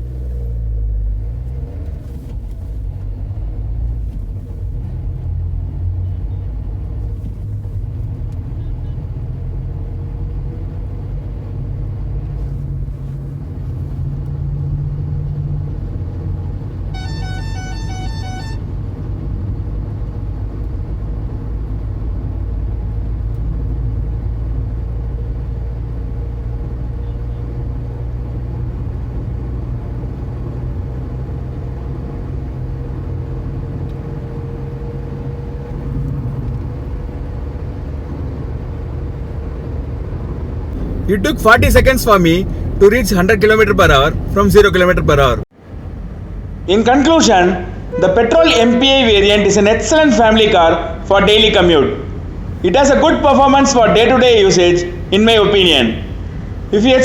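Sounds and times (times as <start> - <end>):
road noise: 0.0 - 57.0
car engine running: 16.7 - 18.8, 40.3 - 45.4
car horn short beeps: 16.9 - 18.8, 40.8 - 45.4, 47.9 - 49.2.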